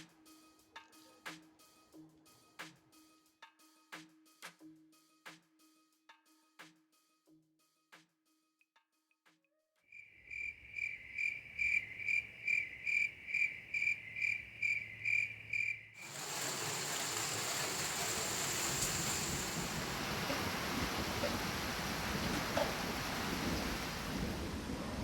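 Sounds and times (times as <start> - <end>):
cricket chirping: 9.9 - 20.7
heavy rain hissing: 16.0 - 25.0.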